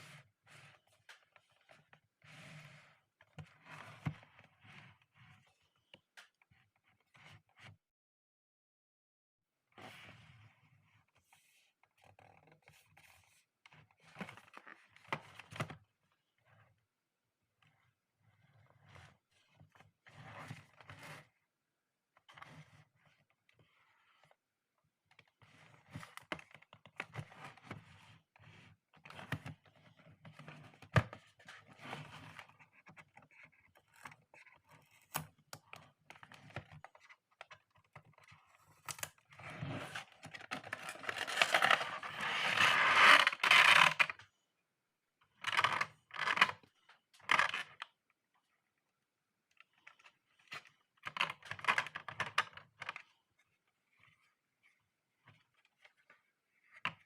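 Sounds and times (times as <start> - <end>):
plastic packaging scraping and rustling: 39.4 - 44.2.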